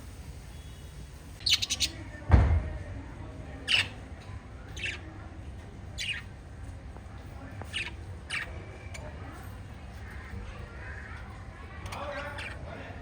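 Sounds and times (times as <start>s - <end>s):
parrots chirping: 1.4s - 2.0s, 3.6s - 4.0s, 4.7s - 5.1s, 6.0s - 6.3s, 7.6s - 9.2s, 11.8s - 13.0s.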